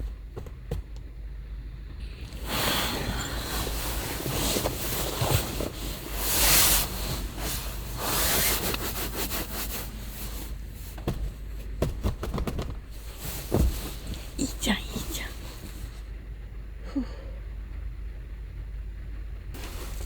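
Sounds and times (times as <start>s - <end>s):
heavy rain beating on van: 2.0s - 17.0s, 19.0s - 20.0s
sharp taps and knocks: 11.0s - 13.8s.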